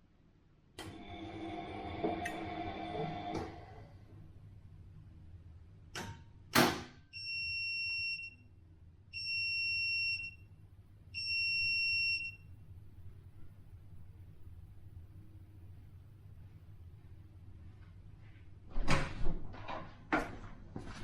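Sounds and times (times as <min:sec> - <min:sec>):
low steady hum: 0:00.0 - 0:06.5, 0:07.2 - 0:18.6
washing machine high beeps: 0:07.1 - 0:08.5, 0:09.1 - 0:10.5, 0:11.1 - 0:12.5.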